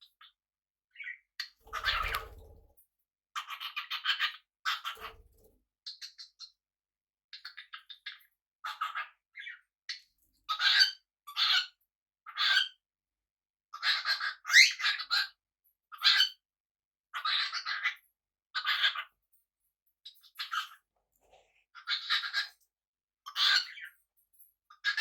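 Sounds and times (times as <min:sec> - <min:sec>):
parrots making rasping calls: 0:01.7 - 0:02.3.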